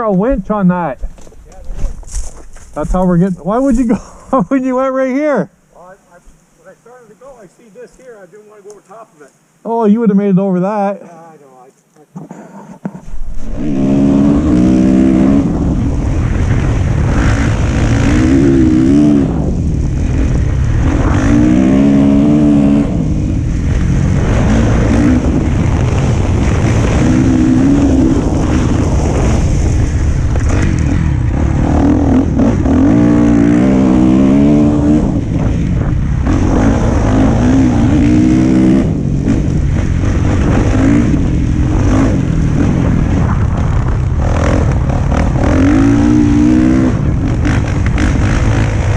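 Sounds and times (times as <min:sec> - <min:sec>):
dirt bike engine revving: 0:13.1 - 0:48.9.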